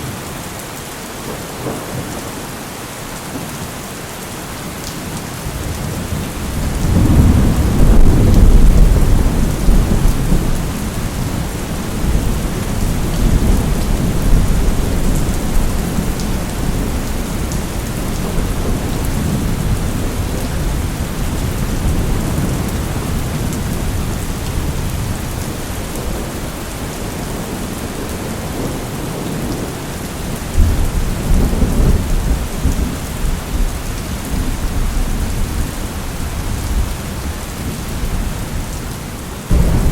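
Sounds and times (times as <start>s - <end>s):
steady rain: 0.0s - 39.9s
rolling thunder: 5.6s - 26.4s, 30.5s - 33.7s, 39.5s - 39.9s.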